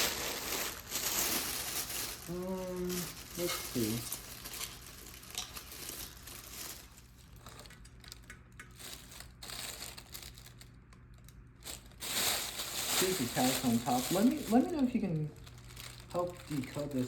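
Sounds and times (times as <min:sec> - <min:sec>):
packing material crinkling: 0:00.0 - 0:17.0
small crackles and clicks: 0:02.9 - 0:11.9.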